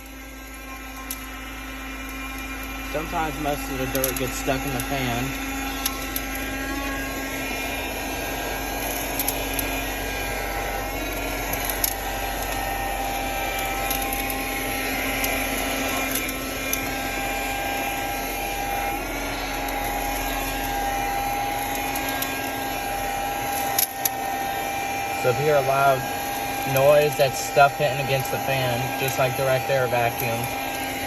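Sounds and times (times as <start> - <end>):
handheld vacuum motor whine: 0.0 - 31.0
debris clicking against fan: 23.6 - 24.2.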